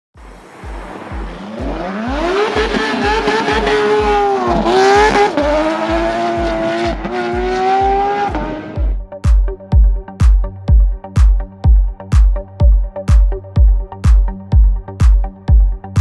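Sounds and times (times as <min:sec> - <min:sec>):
car engine revving high: 0:00.2 - 0:09.0
electronic dance music: 0:00.2 - 0:16.0
steady kick drum beat: 0:00.2 - 0:16.0.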